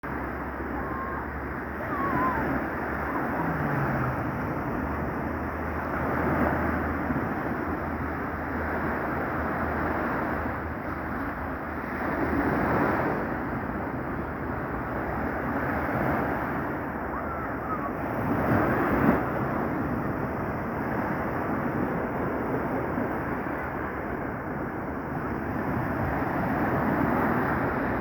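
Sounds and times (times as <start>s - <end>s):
waves breaking: 0.0s - 28.0s
wind buffeting microphone: 0.0s - 28.0s.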